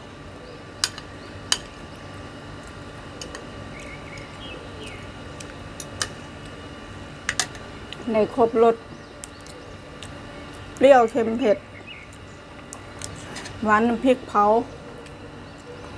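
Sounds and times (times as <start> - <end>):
light eating clicks: 2.6 - 6.6, 9.2 - 11.3.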